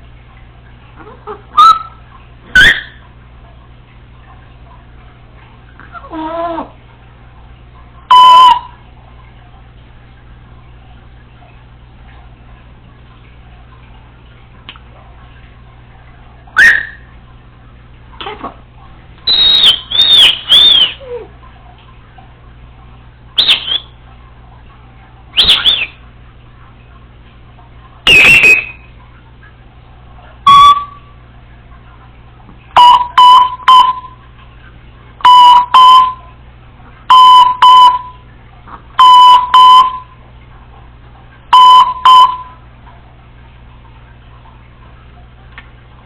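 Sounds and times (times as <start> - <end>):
parrot mimicking electronic beeps: 1.5 - 2.0, 2.6 - 3.0, 8.1 - 8.7, 16.6 - 17.0, 19.3 - 21.0, 28.1 - 28.8, 30.4 - 31.0, 32.8 - 34.1, 35.3 - 36.2
parrot whistling: 1.6 - 3.0, 16.6 - 17.1, 19.2 - 21.2, 23.4 - 24.0, 25.3 - 26.0, 28.1 - 28.9, 30.5 - 31.0.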